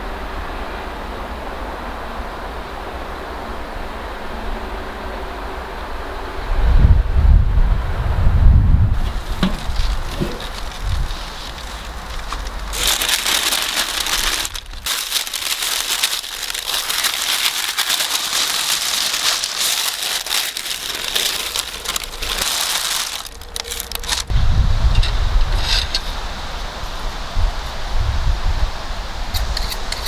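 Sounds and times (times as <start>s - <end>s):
dense crackling hiss: 8.9s - 30.0s.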